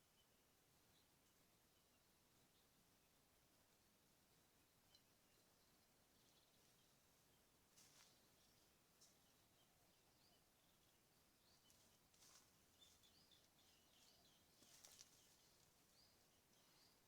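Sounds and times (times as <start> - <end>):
faint bird chirps: 4.5 - 17.0.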